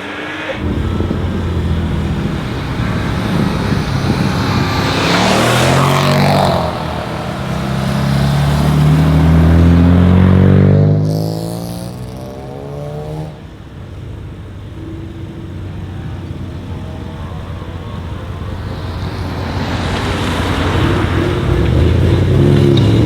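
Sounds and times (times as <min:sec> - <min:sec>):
loud rushing burst: 0:00.0 - 0:13.8
modified car engines accelerating: 0:00.0 - 0:23.0.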